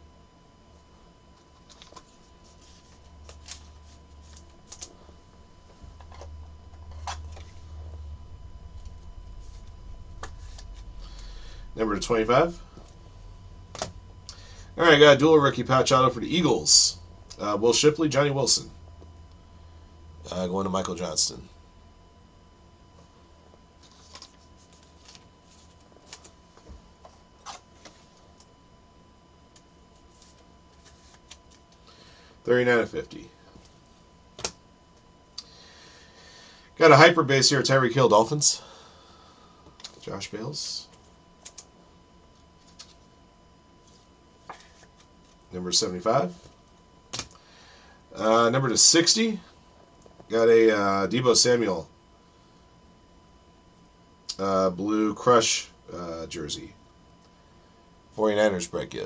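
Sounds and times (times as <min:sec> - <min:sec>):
low steady hum: 0:00.0 - 0:59.0
card rustles and flicks: 0:01.5 - 0:05.0, 0:23.8 - 0:28.5, 0:29.5 - 0:31.8, 0:34.4 - 0:34.6.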